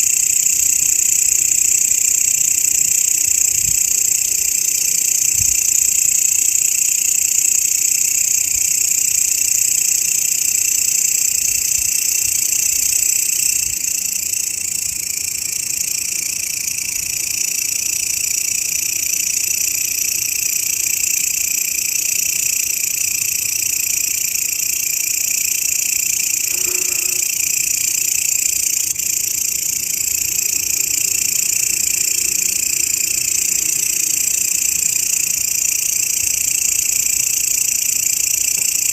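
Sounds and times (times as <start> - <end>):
grasshopper buzzing: 25.6 - 37.0.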